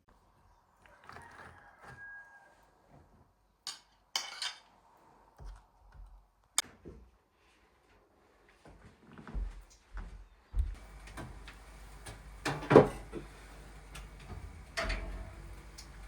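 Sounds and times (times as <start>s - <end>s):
objects knocking and clattering: 12.0s - 13.3s.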